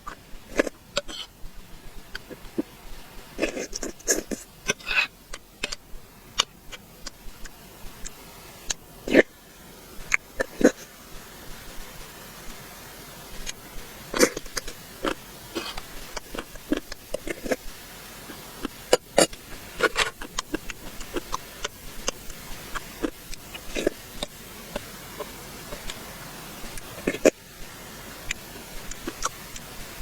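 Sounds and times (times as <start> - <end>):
chewing and mouth noises: 13.3 - 17.7, 18.3 - 26.0, 26.6 - 27.4, 28.2 - 30.0.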